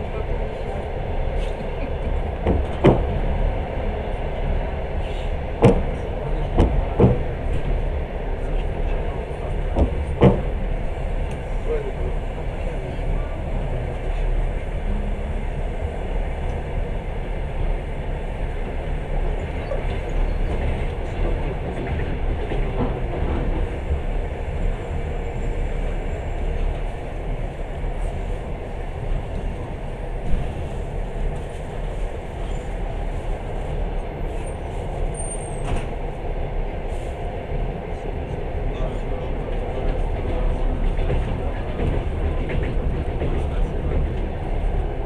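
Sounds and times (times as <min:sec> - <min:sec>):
train wheels rumbling on rails: 0:00.0 - 0:45.0.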